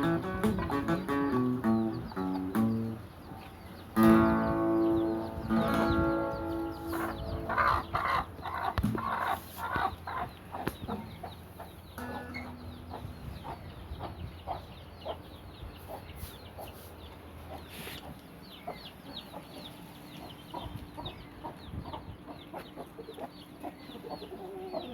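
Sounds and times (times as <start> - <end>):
short high bird calls: 0.0 - 11.1
chickens clucking: 0.0 - 24.9.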